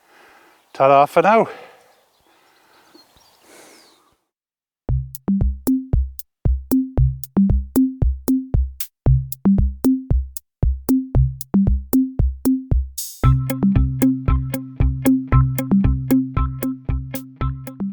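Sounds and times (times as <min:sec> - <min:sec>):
drum machine beat with bass: 0:04.9 - 0:17.9.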